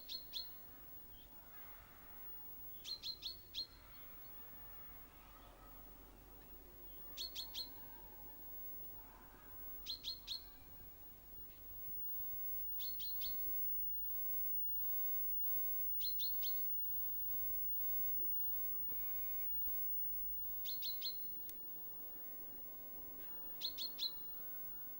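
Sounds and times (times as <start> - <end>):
faint birdsong: 0.0 - 24.9
songbird sharp high chirps: 2.7 - 3.8, 7.1 - 7.9, 9.8 - 10.6, 12.8 - 13.5, 16.0 - 16.6, 20.6 - 21.3, 23.6 - 24.3.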